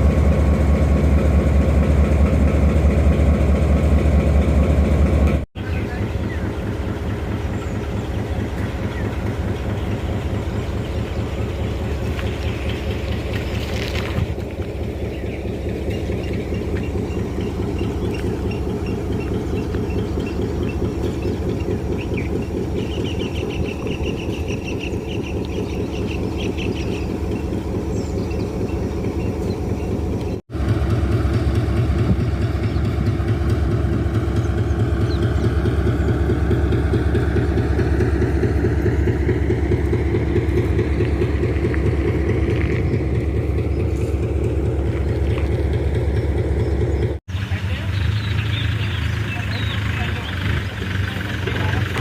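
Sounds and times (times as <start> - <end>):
vehicle engine throbbing: 0.0 - 52.0.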